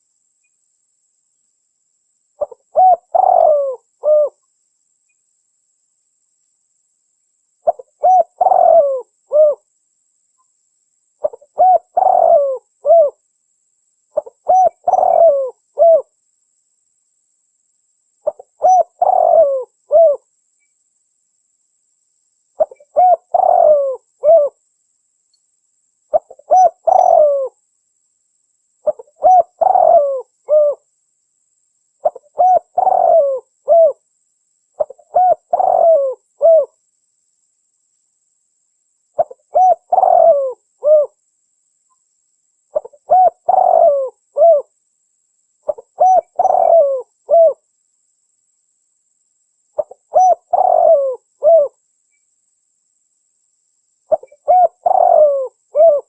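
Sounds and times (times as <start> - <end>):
dove cooing: 2.4 - 4.4, 7.6 - 9.6, 11.2 - 13.2, 14.2 - 16.1, 18.2 - 20.3, 22.6 - 24.6, 26.1 - 27.6, 28.8 - 30.9, 32.0 - 34.0, 34.8 - 36.8, 39.2 - 41.2, 42.7 - 44.7, 45.7 - 47.6, 49.8 - 51.8, 54.1 - 56.0.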